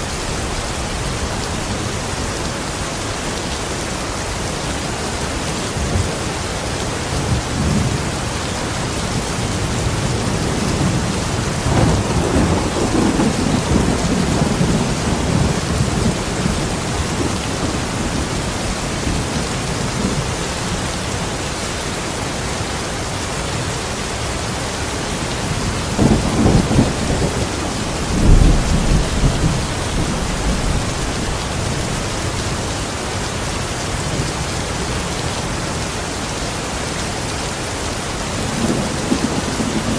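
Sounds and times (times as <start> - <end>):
heavy rain: 0.0 - 39.9
thunder rumbling: 7.1 - 20.4, 25.5 - 32.7, 38.4 - 39.9.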